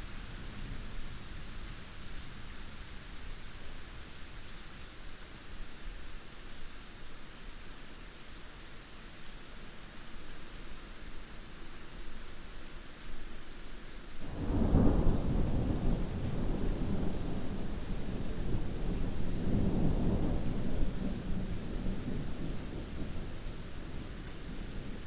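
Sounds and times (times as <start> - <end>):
heavy rain falling: 0.0 - 25.0
thunder rolling: 14.3 - 24.9.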